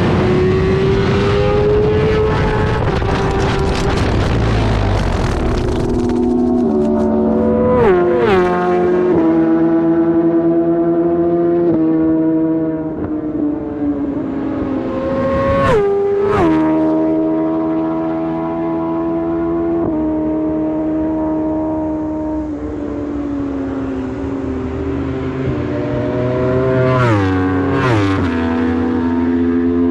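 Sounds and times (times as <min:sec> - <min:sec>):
superbike engine at high revs: 0:00.0 - 0:29.9
gear change crack: 0:02.8 - 0:07.2.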